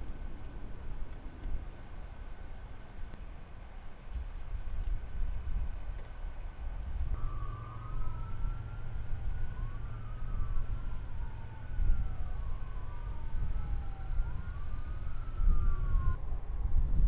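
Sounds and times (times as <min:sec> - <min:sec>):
steady low rumble: 0:00.0 - 0:17.0
emergency siren wailing: 0:07.2 - 0:16.2.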